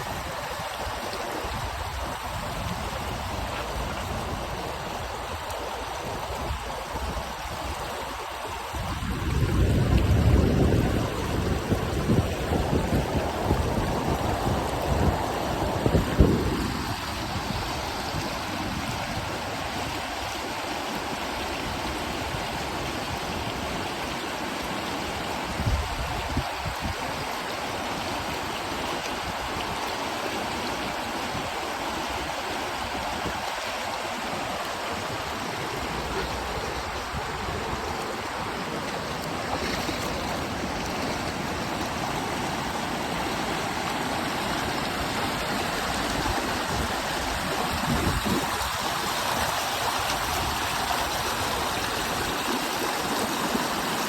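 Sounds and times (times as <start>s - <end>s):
river rapids roaring: 10.8s - 54.0s.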